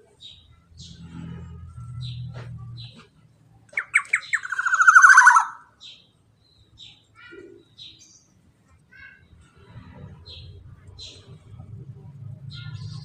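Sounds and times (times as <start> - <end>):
bird singing buzzing trill: 3.8 - 5.6.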